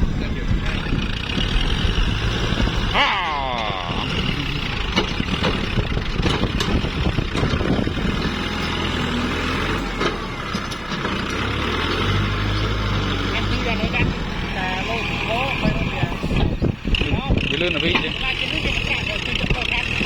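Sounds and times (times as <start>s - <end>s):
tractor diesel engine running: 0.0s - 20.0s
knocks and clatter: 4.1s - 8.9s.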